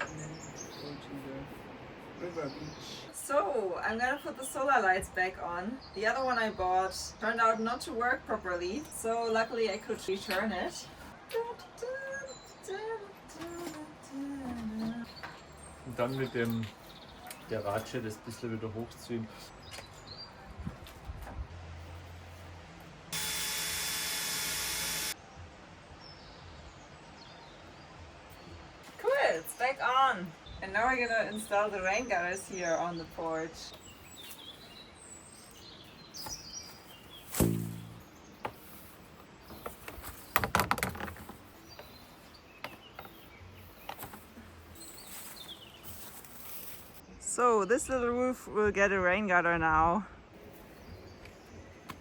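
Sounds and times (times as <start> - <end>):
faint outdoor background: 0.0 - 52.0
cordless drill running: 23.2 - 25.2.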